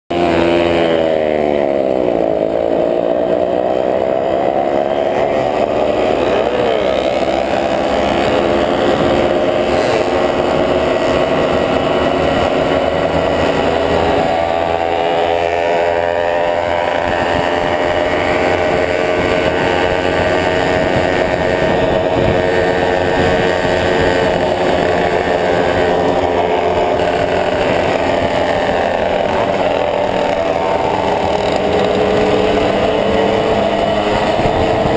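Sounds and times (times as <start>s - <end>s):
motorcycle engine accelerating: 0.1s - 34.9s.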